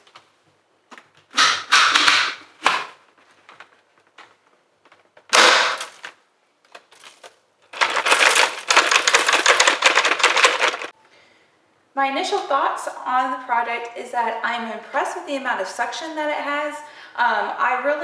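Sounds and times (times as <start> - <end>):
plastic dust bin clacking and rattling: 7.8 - 10.9.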